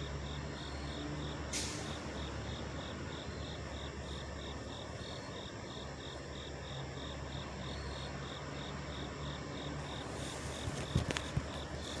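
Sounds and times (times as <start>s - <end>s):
insect chirping: 0.0s - 12.0s
truck engines idling: 0.0s - 12.0s.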